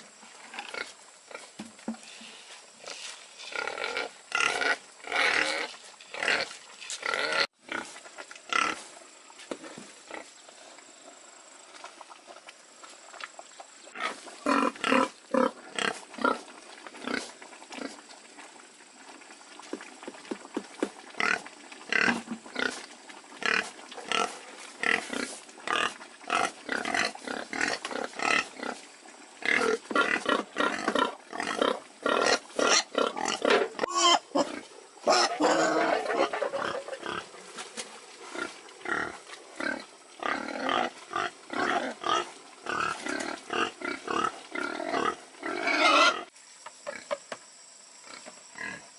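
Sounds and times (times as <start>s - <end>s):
pigs grunting and squealing: 3.4s - 8.9s, 13.9s - 18.1s, 29.4s - 37.4s, 38.3s - 46.3s.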